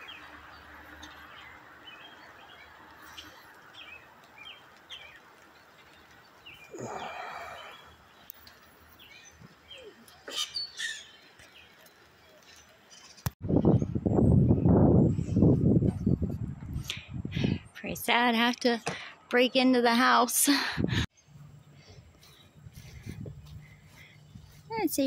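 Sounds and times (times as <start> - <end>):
steady outdoor hiss: 0.0 - 13.2, 21.1 - 25.0
small birds chirping: 0.0 - 14.0, 21.1 - 25.0.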